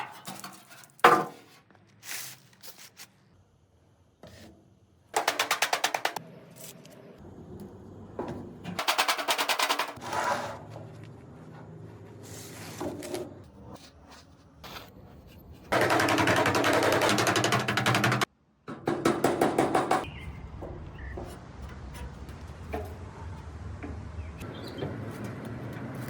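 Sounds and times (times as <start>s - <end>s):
rapid rattling mechanical impacts: 15.7s - 18.3s.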